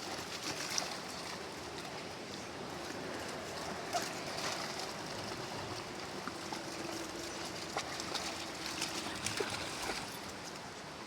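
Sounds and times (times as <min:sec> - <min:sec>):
river water running: 0:00.0 - 0:11.0
dogs splashing in water: 0:03.8 - 0:10.3.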